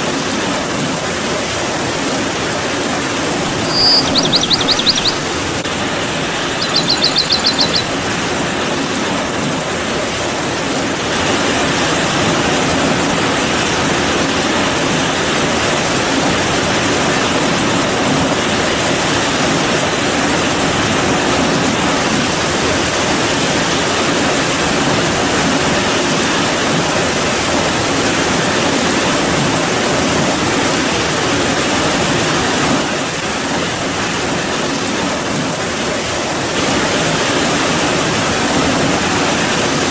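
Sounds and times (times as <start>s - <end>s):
high bird trill: 3.4s - 8.0s.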